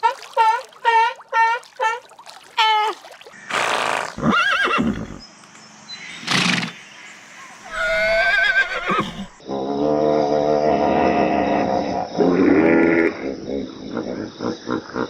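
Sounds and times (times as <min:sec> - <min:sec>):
farm animal calling: 0:07.6 - 0:09.4.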